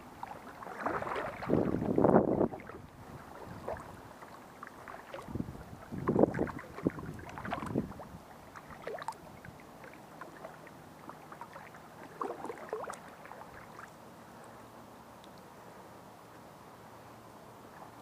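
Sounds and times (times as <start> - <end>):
paddle splashing in water: 0.0 - 14.0.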